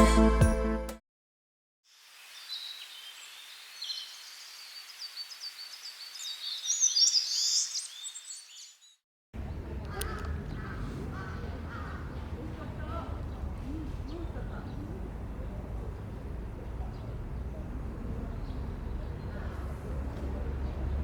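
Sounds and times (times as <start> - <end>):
faint steady hiss: 1.9 - 6.9
small birds chirping: 2.3 - 21.0
low outdoor noise: 9.4 - 21.0.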